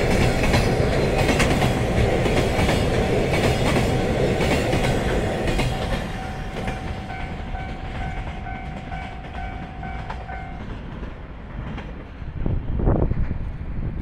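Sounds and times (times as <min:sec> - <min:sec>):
wheels clacking over rail joints: 0:00.0 - 0:12.3
freight train rumbling: 0:00.0 - 0:14.0
level crossing warning bell: 0:04.7 - 0:10.8
wind gusts on microphone: 0:10.9 - 0:14.0.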